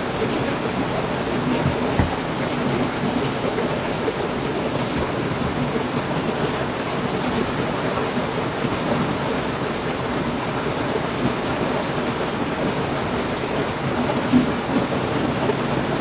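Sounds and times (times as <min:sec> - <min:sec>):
short low thump: 0:01.6 - 0:02.2.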